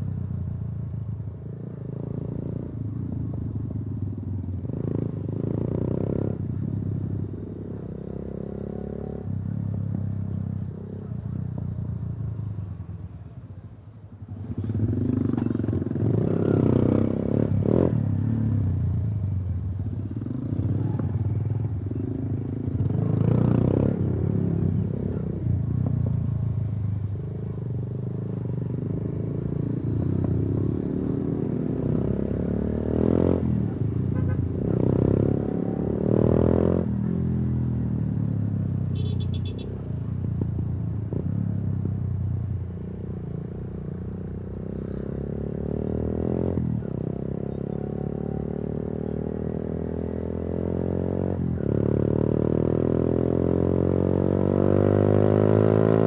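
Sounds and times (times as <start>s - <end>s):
motorcycle engine revving: 14.4s - 37.8s, 44.5s - 56.0s.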